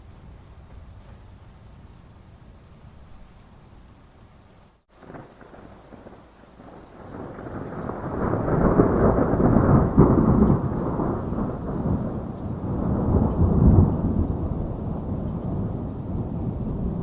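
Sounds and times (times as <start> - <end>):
steady rain: 0.0 - 17.0
thunder rolling: 5.0 - 17.0.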